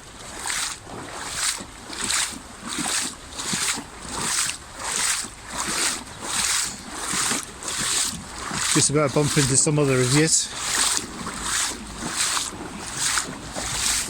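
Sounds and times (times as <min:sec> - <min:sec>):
wading through water: 0:00.0 - 0:14.0.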